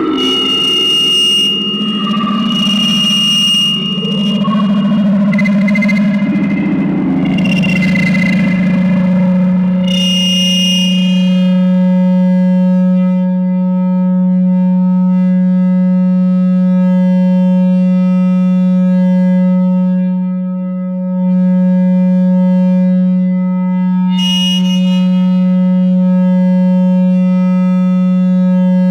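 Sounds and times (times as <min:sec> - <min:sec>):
harsh high-pitched noise burst: 0:00.0 - 0:11.9, 0:24.2 - 0:25.3
mixer feedback drone: 0:00.0 - 0:28.9.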